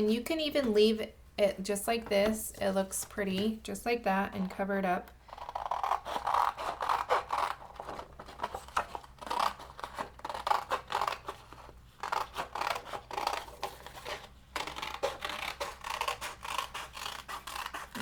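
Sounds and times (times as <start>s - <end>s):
scissors snipping paper: 5.4s - 18.0s.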